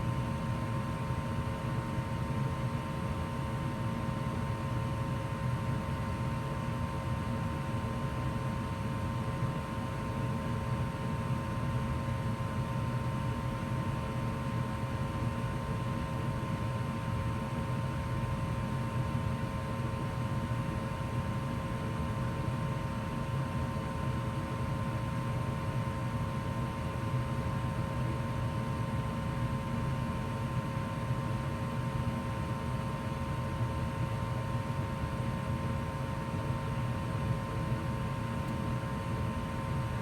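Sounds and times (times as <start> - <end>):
gas furnace running: 36.7 - 40.0.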